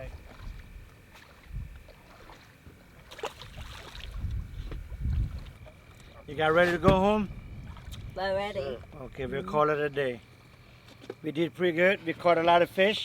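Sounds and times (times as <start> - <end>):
wind rumbling on microphone: 0.0 - 2.1, 3.3 - 9.6
low thumps: 6.8 - 8.2.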